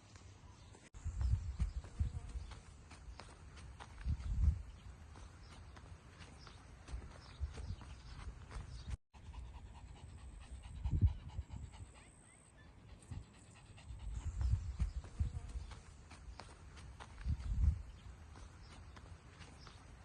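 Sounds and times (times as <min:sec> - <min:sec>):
puppy panting: 0:01.9 - 0:20.0.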